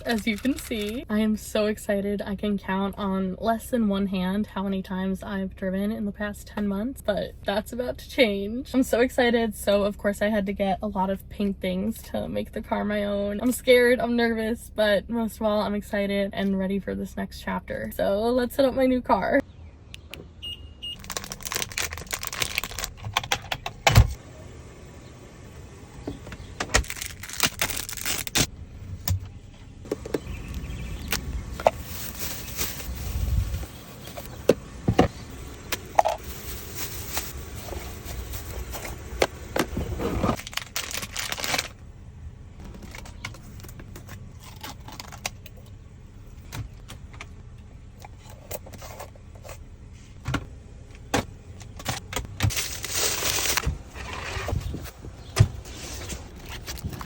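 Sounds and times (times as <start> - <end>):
rustling: 31.2 - 34.5, 35.1 - 41.8.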